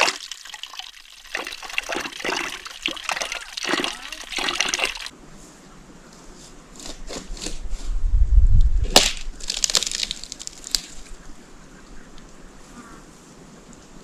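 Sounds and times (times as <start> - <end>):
twigs snapping: 8.8 - 11.3.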